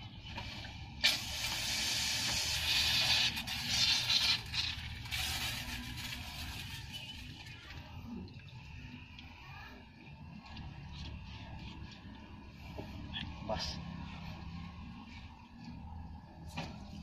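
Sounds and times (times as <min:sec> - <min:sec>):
hose spraying water: 0:01.0 - 0:06.7.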